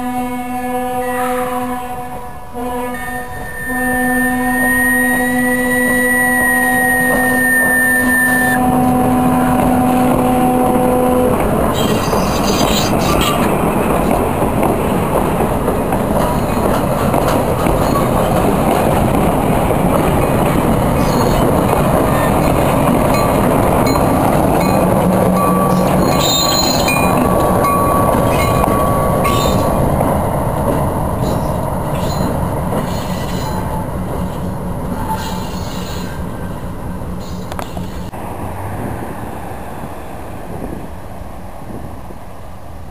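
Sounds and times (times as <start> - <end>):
diesel locomotive passing: 0.0 - 42.9
train wheels rumbling over rails: 8.6 - 42.9
thin wheel squeal: 26.0 - 27.0.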